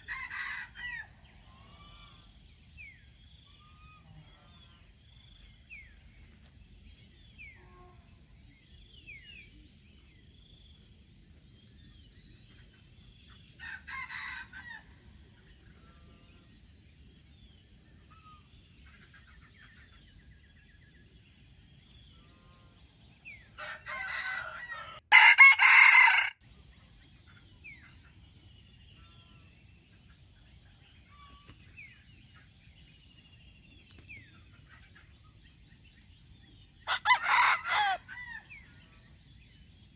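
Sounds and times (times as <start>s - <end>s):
rooster crowing: 0.0s - 2.0s, 13.6s - 14.9s, 23.6s - 26.4s, 36.9s - 38.6s.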